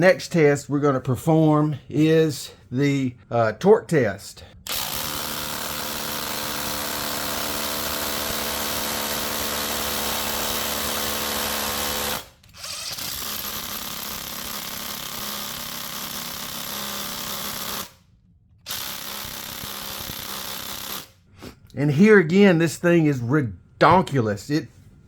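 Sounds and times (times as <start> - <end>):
impact driver hammering: 4.7 - 12.3, 18.7 - 21.1.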